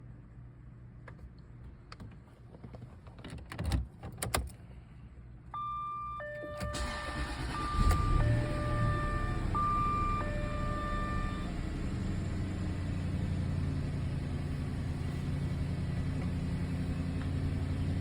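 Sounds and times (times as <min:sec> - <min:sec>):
car engine cranking and running: 0:06.6 - 0:10.3, 0:11.1 - 0:18.0.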